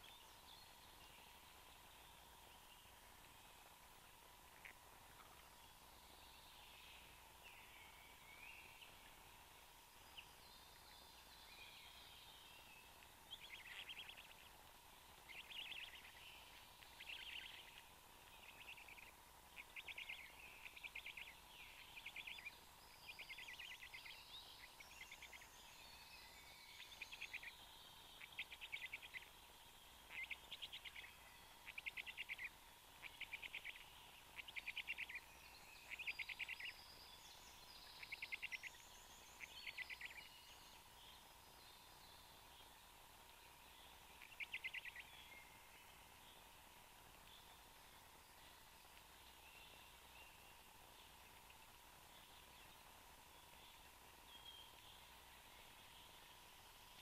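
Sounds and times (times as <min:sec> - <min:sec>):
faint trilled bird calls: 0:10.1 - 0:14.6, 0:15.2 - 0:42.8, 0:43.4 - 0:46.5.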